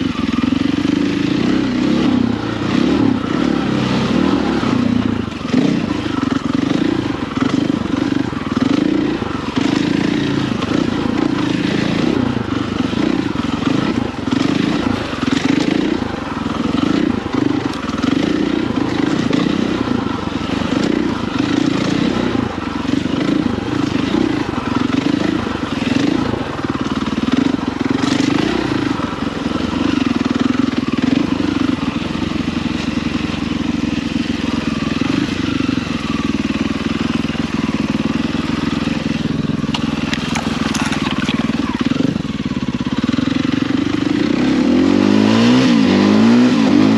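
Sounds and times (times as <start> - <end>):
motorcycle engine under load: 0.0 - 46.9
wind: 0.0 - 46.9
chassis rattle: 39.5 - 42.1.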